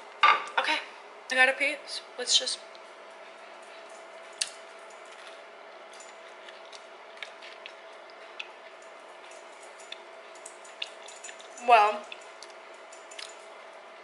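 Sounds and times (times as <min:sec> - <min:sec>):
quiet chewing: 0:02.7 - 0:13.7.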